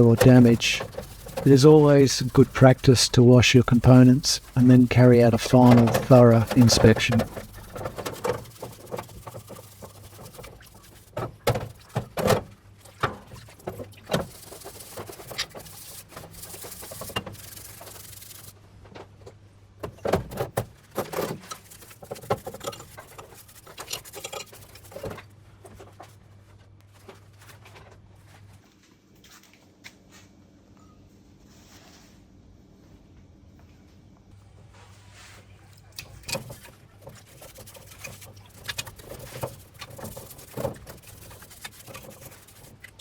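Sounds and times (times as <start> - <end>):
steady low hum: 0.0 - 11.0
washing hiss: 0.0 - 11.2
scrubbing and rubbing: 0.0 - 18.6, 20.4 - 27.8, 36.0 - 43.0.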